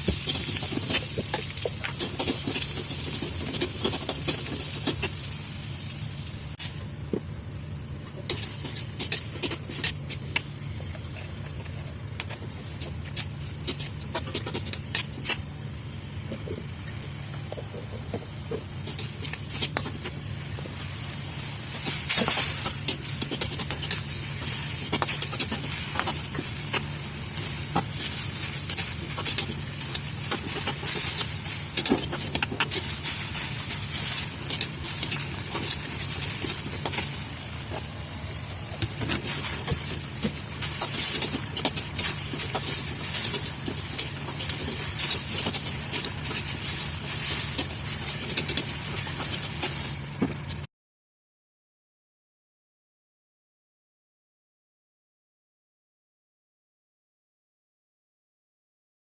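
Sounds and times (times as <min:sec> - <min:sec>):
food sizzling in a frying pan: 0:00.0 - 0:06.9, 0:18.8 - 0:50.6.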